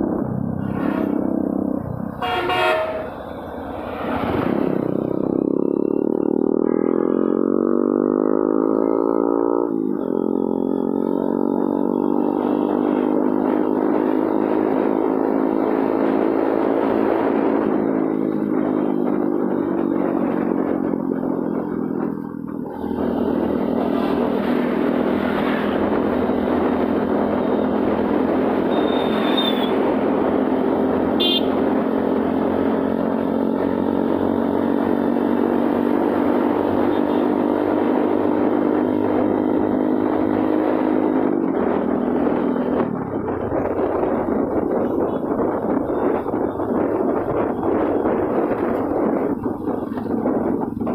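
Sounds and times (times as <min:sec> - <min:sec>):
motorcycle engine running: 0:04.6 - 0:16.3.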